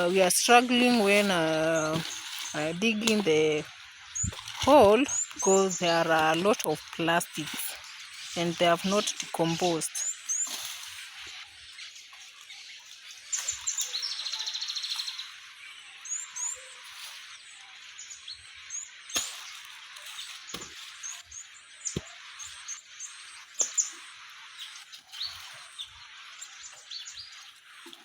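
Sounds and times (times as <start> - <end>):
outdoor hiss: 0.0 - 10.7
birds chirping: 0.0 - 28.0.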